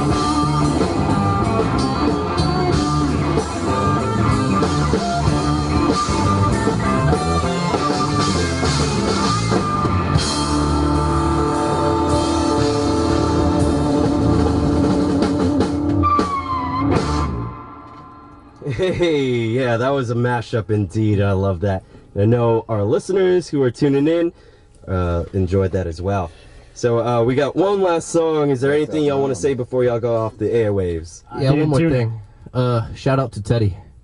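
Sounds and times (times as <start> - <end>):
live rock band playing: 0.0 - 18.8
drum kit: 0.0 - 20.2
guitar: 0.0 - 26.7, 27.3 - 33.0.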